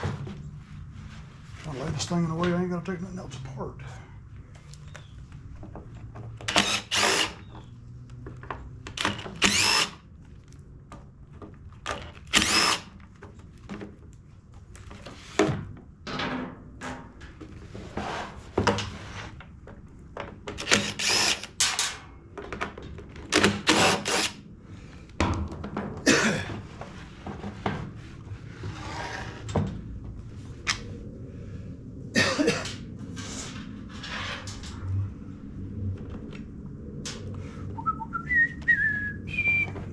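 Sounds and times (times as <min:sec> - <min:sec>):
small power tool running: 0:06.5 - 0:07.5, 0:09.4 - 0:10.0
low steady hum: 0:29.5 - 0:39.9.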